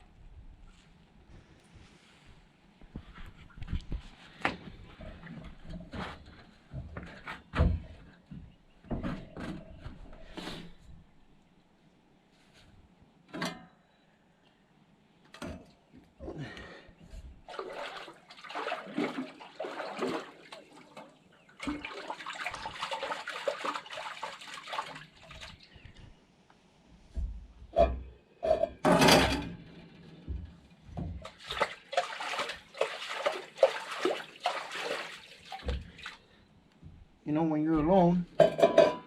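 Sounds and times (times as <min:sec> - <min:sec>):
water sloshing and splashing: 0:17.1 - 0:26.2, 0:27.2 - 0:37.1
dishes clattering: 0:27.7 - 0:29.6, 0:38.3 - 0:39.0.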